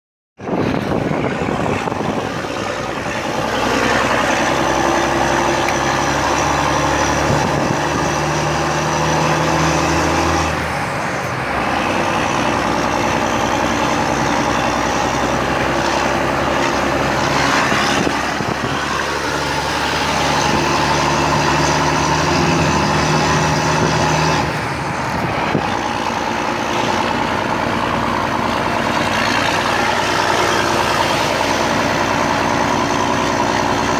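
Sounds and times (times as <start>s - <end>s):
diesel truck engine revving: 0.4s - 33.9s.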